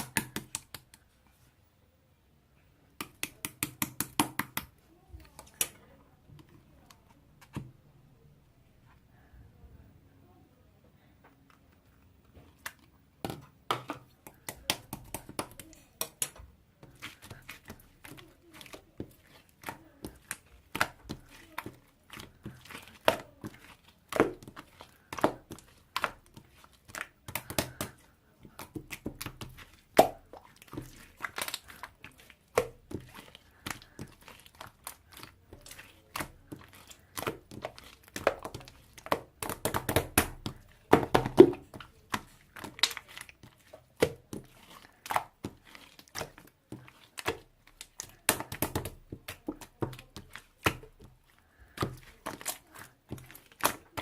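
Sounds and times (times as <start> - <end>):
slime popping and crackling: 12.6 - 54.0.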